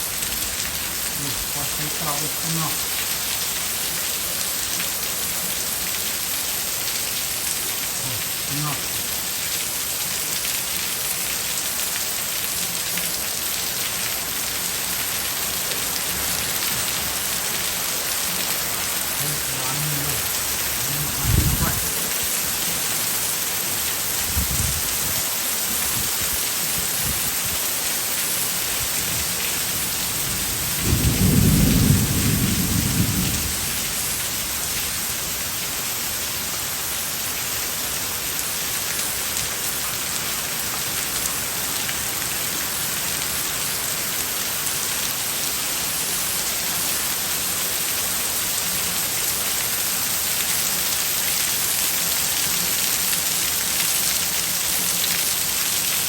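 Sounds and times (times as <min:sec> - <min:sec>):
heavy rain pouring: 0:00.0 - 0:56.0
thunder rumble: 0:30.4 - 0:33.8.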